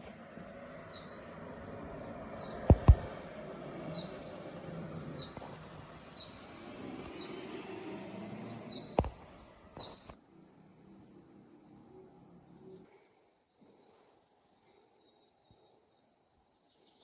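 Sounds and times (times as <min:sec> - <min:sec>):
sharp thumps: 0:02.4 - 0:03.4.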